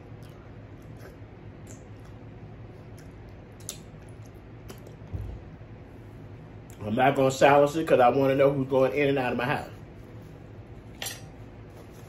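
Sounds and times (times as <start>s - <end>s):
wet chewing: 0.0s - 5.1s
low room hum: 0.0s - 12.0s
soft mouth clicks and smacks: 0.1s - 2.2s, 2.8s - 5.1s.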